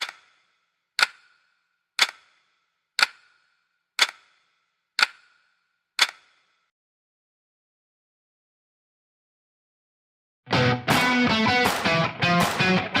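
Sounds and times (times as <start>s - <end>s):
sharp ringing ticks: 0.0s - 6.4s.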